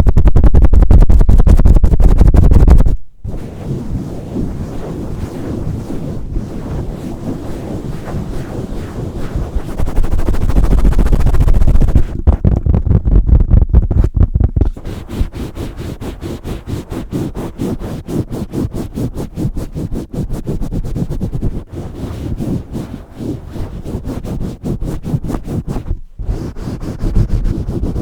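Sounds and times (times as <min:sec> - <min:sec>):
deep microphone handling rumble: 0:00.0 - 0:05.1, 0:09.5 - 0:14.8
scratchy rubbing on microphone: 0:00.0 - 0:28.0
quick regular strokes on microphone: 0:01.2 - 0:28.0.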